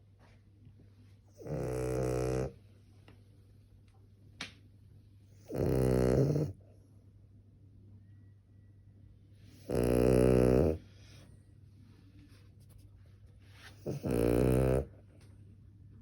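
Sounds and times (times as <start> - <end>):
dog snoring: 1.4 - 2.6, 5.4 - 6.6, 9.5 - 10.9, 13.8 - 14.9.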